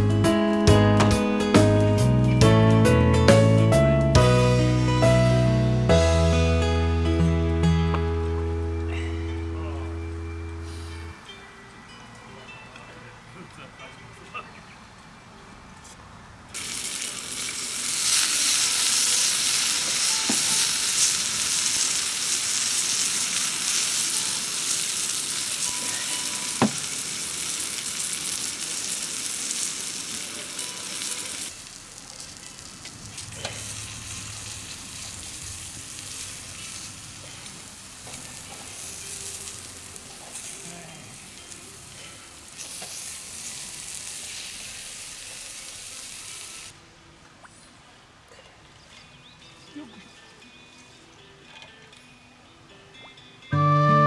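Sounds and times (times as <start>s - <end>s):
sizzling hiss: 16.6s - 46.8s.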